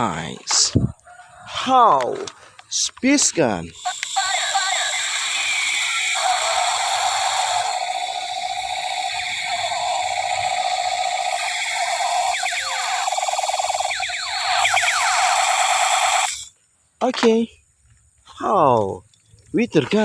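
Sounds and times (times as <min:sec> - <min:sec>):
toy gun electronic buzzing: 0:03.7 - 0:16.6
falling laser zaps: 0:03.8 - 0:16.5.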